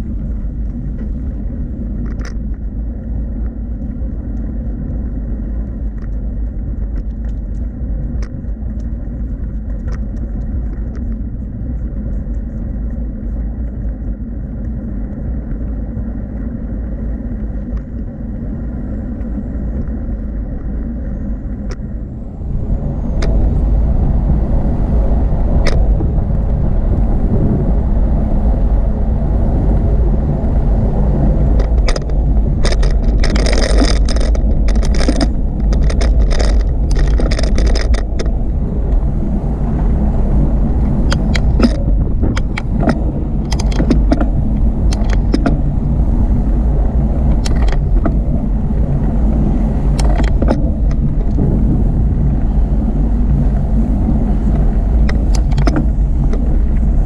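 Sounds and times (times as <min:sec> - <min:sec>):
wind and bicycle tyres rumbling: 0:00.0 - 0:57.0
rattling clicks: 0:02.0 - 0:02.6, 0:31.5 - 0:38.4, 0:41.0 - 0:45.7, 0:47.2 - 0:48.3, 0:49.9 - 0:51.5, 0:55.0 - 0:57.0.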